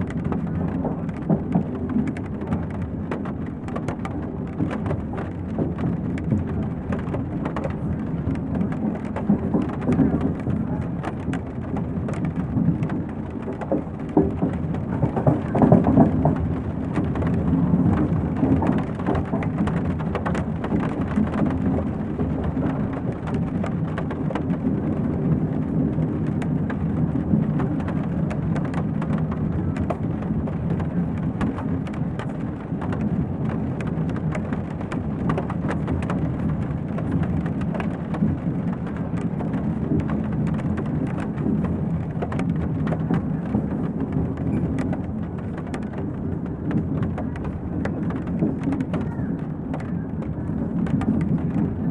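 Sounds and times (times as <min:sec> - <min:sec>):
rain ticking on window: 0:00.0 - 0:51.9
train rumbling: 0:00.0 - 0:51.9
faint voices murmuring: 0:46.5 - 0:51.9.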